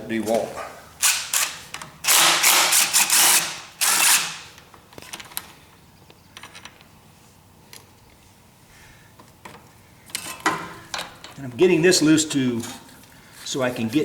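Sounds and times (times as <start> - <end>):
metal parts clinking: 1.0 - 4.4
cordless power tool running: 1.0 - 4.5.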